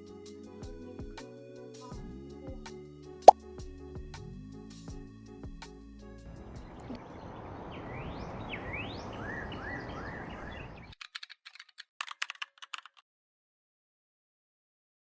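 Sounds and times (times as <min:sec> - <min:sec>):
sharp clicks patter: 0:10.9 - 0:13.0.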